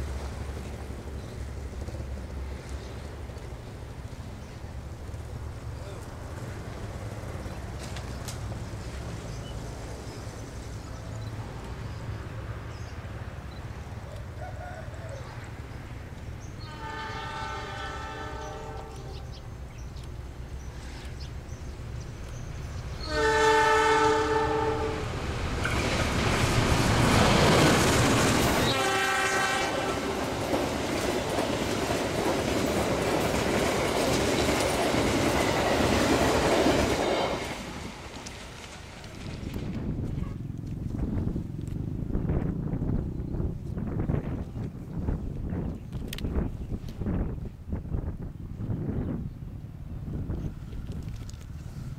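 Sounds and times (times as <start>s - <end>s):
train wheels on rails: 0.0s - 48.3s
diesel locomotive rumbling: 0.0s - 51.9s
train horn blasts: 16.6s - 19.4s, 23.0s - 25.1s, 28.6s - 30.2s.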